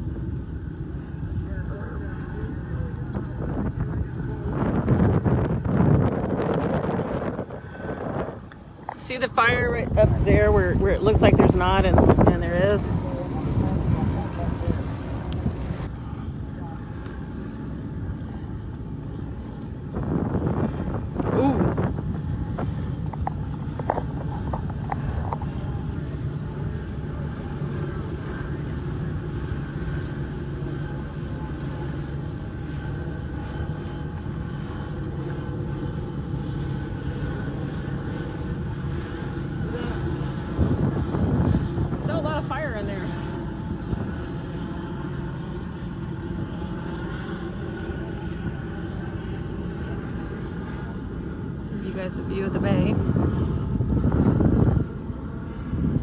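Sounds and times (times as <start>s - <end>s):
engine droning: 0.0s - 56.0s.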